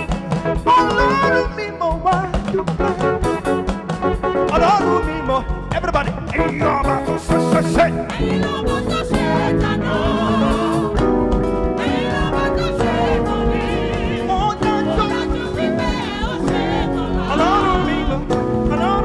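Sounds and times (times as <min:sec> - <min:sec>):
band playing gospel music: 0:00.0 - 0:19.0
choir and congregation singing: 0:06.8 - 0:19.0.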